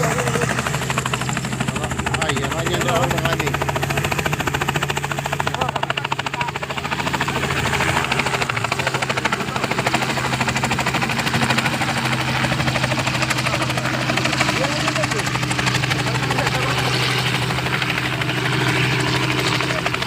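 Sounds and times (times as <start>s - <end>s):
helicopter rotor chopping: 0.0s - 20.0s.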